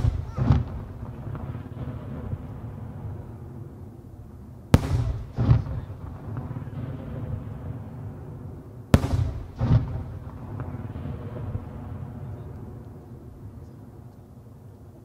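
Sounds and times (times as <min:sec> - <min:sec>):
fireworks sharp bangs: 0:00.0 - 0:03.7, 0:04.7 - 0:12.8
dull fireworks boom: 0:00.0 - 0:14.2.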